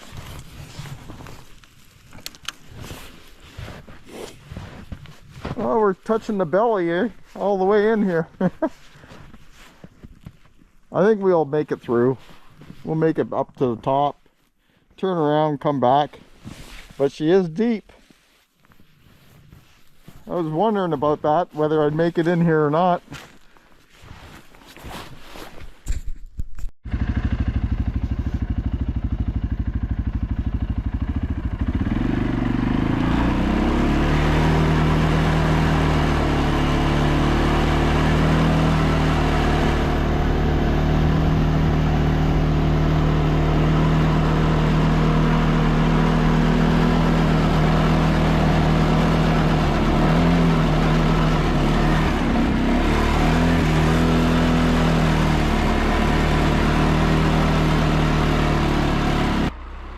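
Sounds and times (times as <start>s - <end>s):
atv engine running under load: 5.4s - 8.3s, 26.8s - 59.9s.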